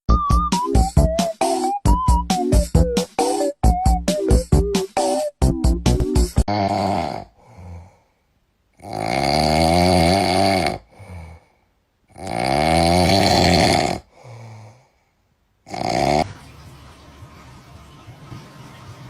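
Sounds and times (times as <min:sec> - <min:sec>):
animal snoring loudly: 0:06.5 - 0:07.4, 0:08.8 - 0:11.3, 0:12.1 - 0:14.1, 0:15.6 - 0:16.3.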